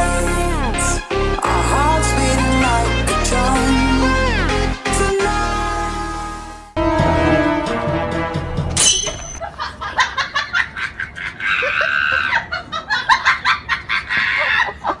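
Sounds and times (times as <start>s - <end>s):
person laughing: 9.4s - 15.0s.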